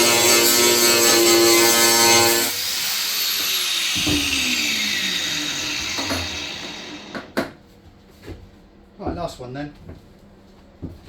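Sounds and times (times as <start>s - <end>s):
angle grinder spinning down: 0.0s - 7.3s.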